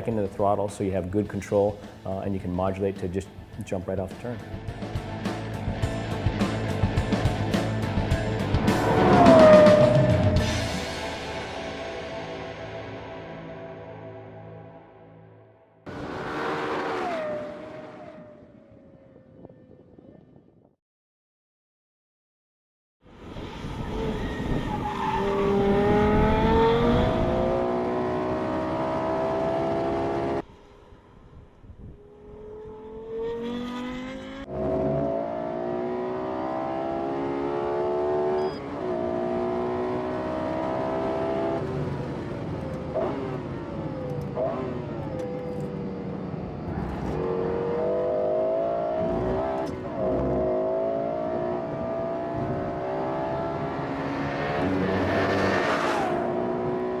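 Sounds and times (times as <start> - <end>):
car engine accelerating hard: 5.8 - 11.3, 23.4 - 30.4, 32.1 - 57.0.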